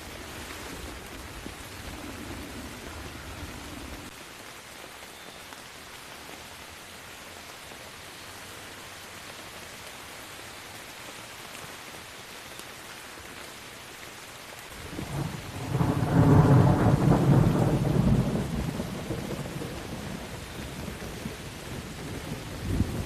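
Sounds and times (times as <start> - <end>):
steady rain: 0.0 - 23.0
thunder rumbling: 0.1 - 4.1, 14.8 - 23.0.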